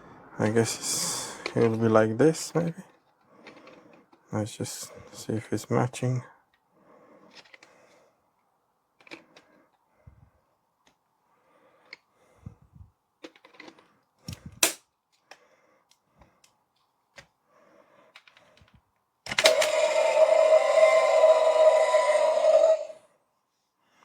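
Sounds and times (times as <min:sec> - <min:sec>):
plastic toy parts clicking: 0:02.9 - 0:04.1, 0:07.3 - 0:07.7, 0:09.0 - 0:09.5, 0:13.2 - 0:17.3, 0:18.1 - 0:20.3
loud steady pitched tone: 0:19.5 - 0:23.0.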